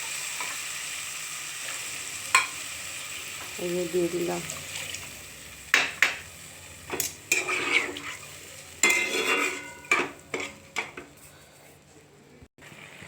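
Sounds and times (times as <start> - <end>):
metal spoon clinking in a pot: 8.8 - 11.1.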